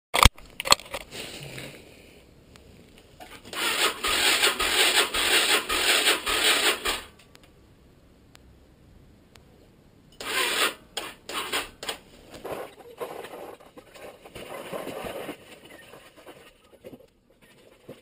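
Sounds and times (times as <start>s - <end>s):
motorcycle engine cranking: 3.2s - 7.2s, 10.2s - 12.0s.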